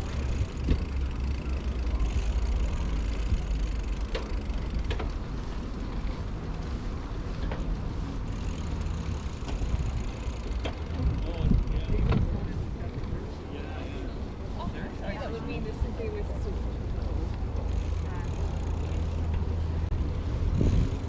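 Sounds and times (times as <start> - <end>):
wind on microphone: 10.7 - 13.3, 19.9 - 21.0.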